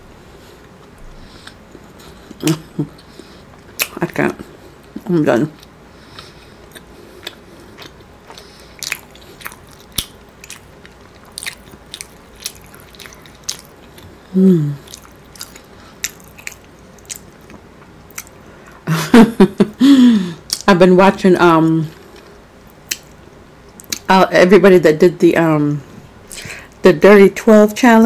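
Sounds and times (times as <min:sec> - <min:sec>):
person chewing with wet smacks: 0:00.6 - 0:18.6, 0:22.0 - 0:24.1.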